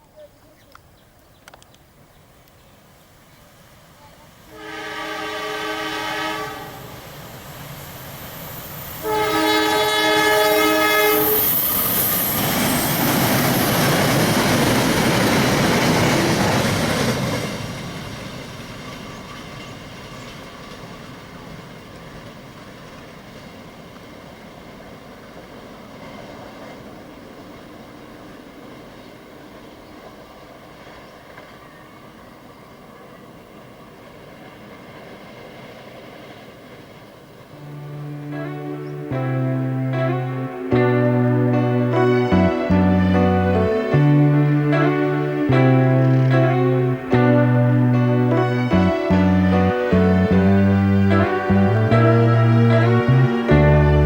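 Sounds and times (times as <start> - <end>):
train passing: 2.0 - 54.0
train horn blasts: 4.5 - 7.2, 8.9 - 16.8, 37.5 - 54.0.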